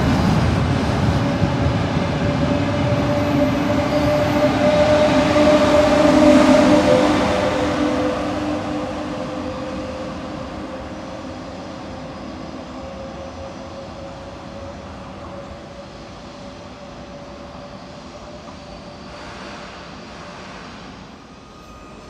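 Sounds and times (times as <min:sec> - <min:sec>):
steady whine: 0:00.0 - 0:22.0
train rumbling past: 0:00.0 - 0:22.0.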